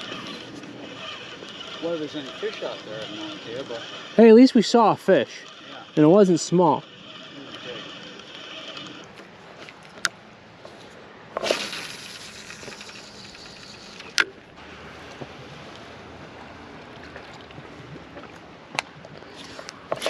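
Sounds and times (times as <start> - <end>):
water lapping: 0.0 - 9.2, 14.7 - 18.6
wind: 0.0 - 20.0.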